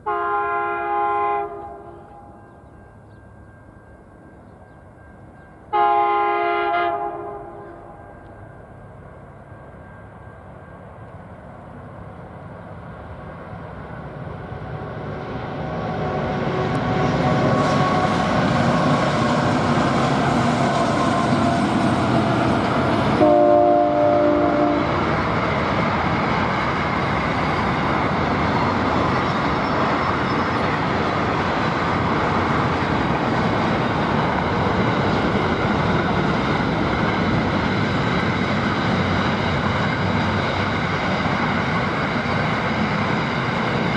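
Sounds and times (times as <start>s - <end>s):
train horn blast: 0.0s - 2.4s, 5.7s - 8.2s, 23.1s - 25.3s
diesel train rumbling past: 0.0s - 43.9s.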